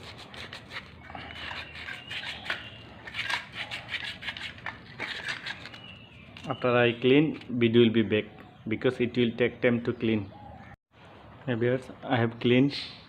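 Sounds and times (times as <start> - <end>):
sandpaper scratching metal: 0.0 - 5.8.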